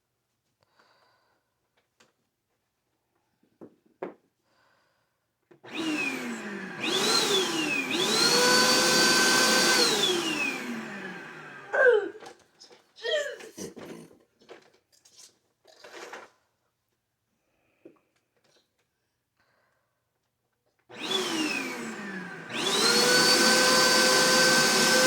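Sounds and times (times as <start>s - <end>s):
vacuum cleaner motor whining: 5.7s - 11.9s, 20.9s - 25.0s.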